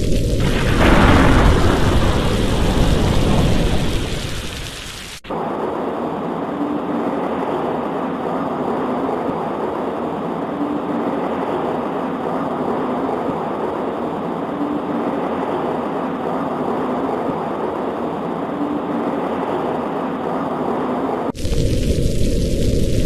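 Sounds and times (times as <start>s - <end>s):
deep thunder roll: 0.0s - 23.0s
steady rain: 0.0s - 23.0s.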